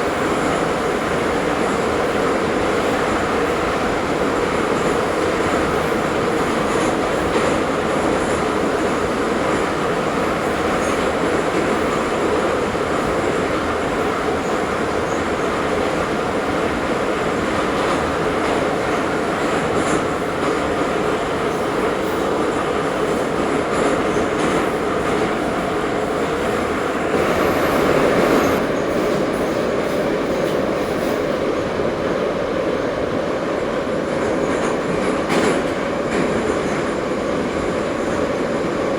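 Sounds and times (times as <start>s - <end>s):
train wheels rumbling on rail: 0.0s - 38.9s
wheel squeal: 27.1s - 28.7s
wheels clickety-clack: 34.1s - 37.0s.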